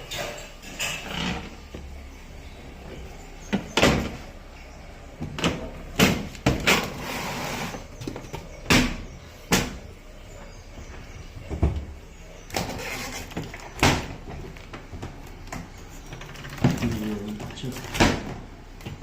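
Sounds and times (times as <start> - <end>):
scraping rustle: 6.6 - 8.3, 12.4 - 18.1
plastic parts knocking: 13.3 - 19.0.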